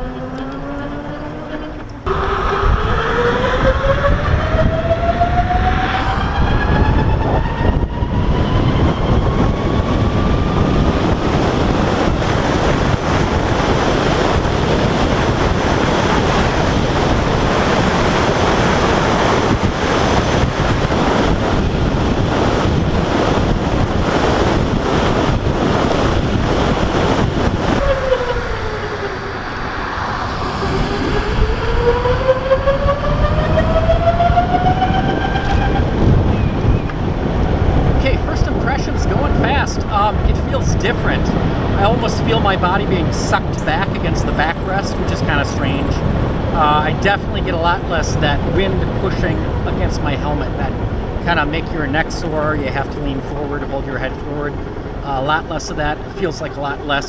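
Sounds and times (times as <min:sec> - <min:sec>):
electric motorcycle motor whine: 0:00.0 - 0:37.9
wind and road noise: 0:00.0 - 0:57.0.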